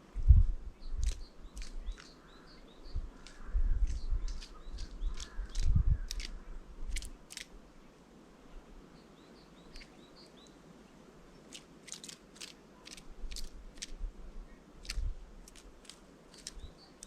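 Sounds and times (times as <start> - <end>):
soft high bird chirps: 0.7 - 7.4, 8.9 - 10.6, 16.3 - 17.0
beaks pecking and cracking seeds: 0.9 - 7.6, 9.7 - 10.6, 11.4 - 14.0, 14.8 - 17.0.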